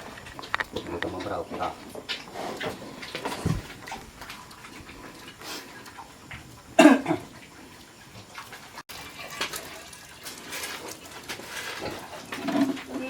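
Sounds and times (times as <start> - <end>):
water running and splashing: 2.9 - 12.3.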